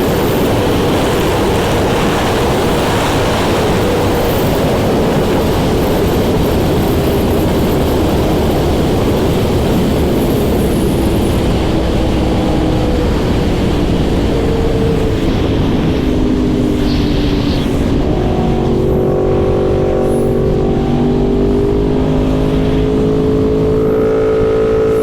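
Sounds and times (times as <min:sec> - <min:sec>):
motorcycle engine running: 0:00.0 - 0:25.0
wind rush on microphone: 0:00.0 - 0:25.0.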